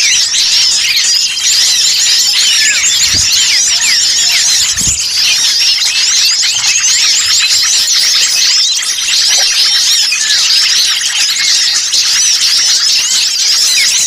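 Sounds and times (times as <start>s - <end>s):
songbirds chirping and twittering: 0.0s - 14.0s
low thumps: 2.9s - 5.2s.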